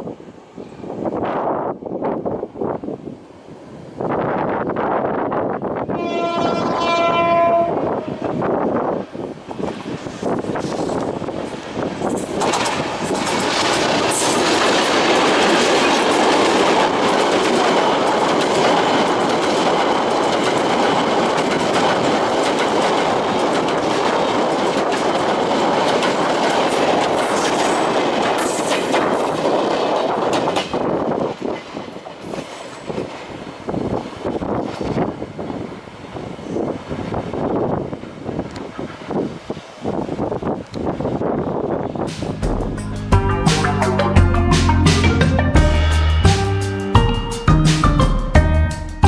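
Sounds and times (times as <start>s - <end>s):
diesel freight train passing: 0.0s - 49.0s
wheels clattering over rail joints: 8.6s - 35.2s.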